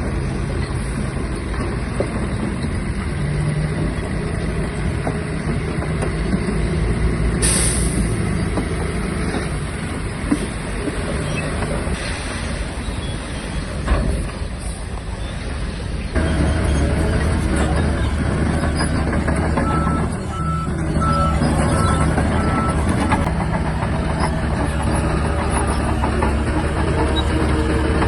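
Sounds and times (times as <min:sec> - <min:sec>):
bulldozer diesel engine under load: 0:00.0 - 0:28.0
reversing alarm beeping: 0:19.6 - 0:23.3.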